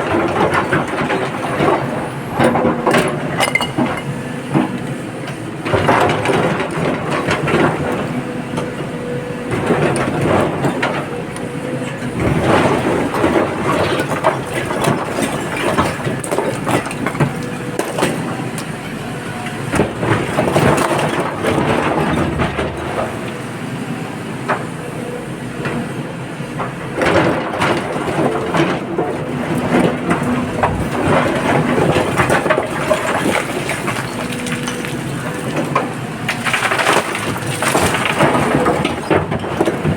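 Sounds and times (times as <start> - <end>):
excavator engine running: 0.0 - 39.9
rock and earth crunching: 27.5 - 39.9.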